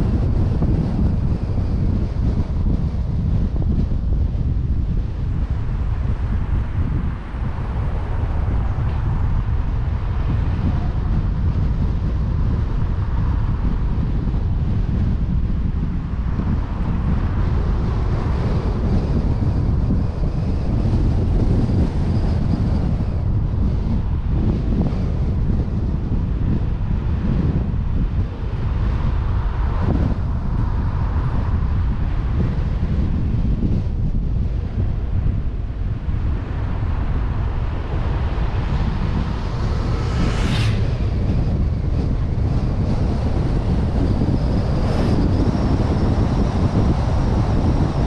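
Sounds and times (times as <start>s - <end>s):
road and engine noise: 0.0s - 48.0s
wind buffeting the microphone: 0.0s - 48.0s.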